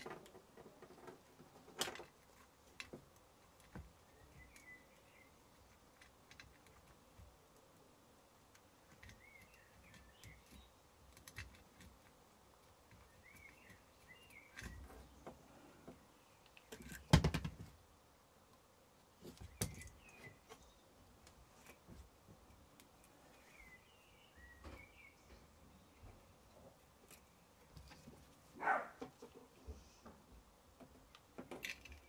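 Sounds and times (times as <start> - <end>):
faint room noise: 0.0 - 32.0
bird chirping: 4.0 - 5.9, 8.8 - 10.9, 12.9 - 17.2, 19.2 - 21.0, 22.8 - 26.7.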